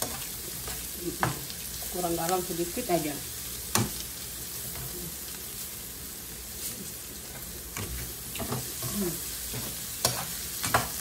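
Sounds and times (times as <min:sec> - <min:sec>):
food sizzling in a wok: 0:00.0 - 0:11.0
spatula scraping a pan: 0:07.3 - 0:11.0.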